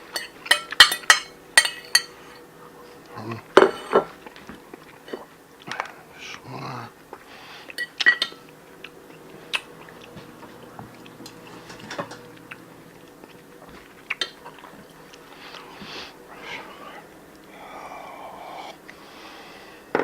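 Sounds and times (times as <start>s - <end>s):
cutlery clinking against dishes: 0.0s - 2.4s, 3.6s - 4.5s, 7.7s - 8.5s, 9.6s - 12.8s
soft chewing: 1.5s - 19.8s.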